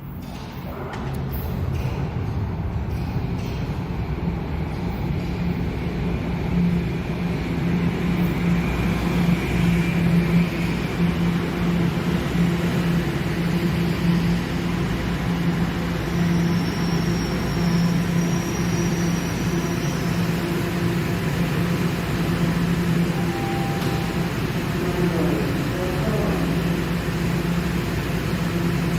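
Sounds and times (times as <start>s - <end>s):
subway train electrical hum: 0.0s - 28.9s
faint high whine: 8.4s - 28.9s.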